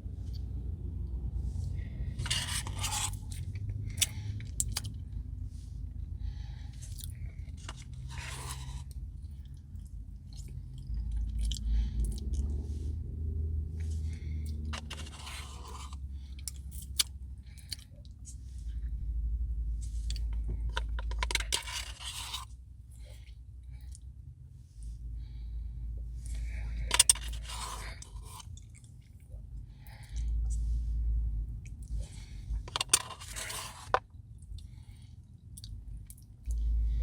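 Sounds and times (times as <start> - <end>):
clicks and scraping: 2.2 - 5.0, 7.1 - 9.0, 14.5 - 18.4, 19.8 - 22.5, 26.3 - 28.9, 32.6 - 34.1
chewing and crunching: 2.2 - 5.2, 6.7 - 12.6, 13.9 - 18.8, 19.8 - 24.1, 26.2 - 30.6, 31.6 - 36.8.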